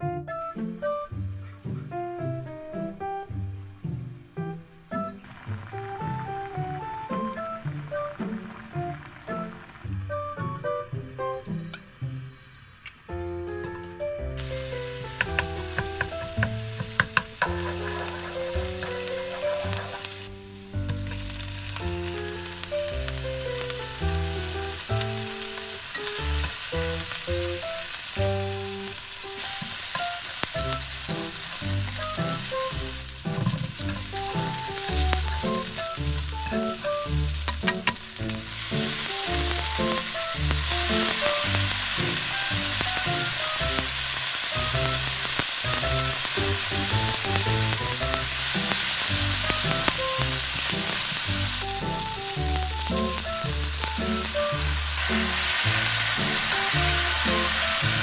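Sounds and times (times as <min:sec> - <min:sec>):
soft background music: 0:00.0 - 0:58.0
shrimp sizzling in oil: 0:05.2 - 0:09.8, 0:14.4 - 0:58.0
chopsticks tapping pan: 0:14.4 - 0:58.0.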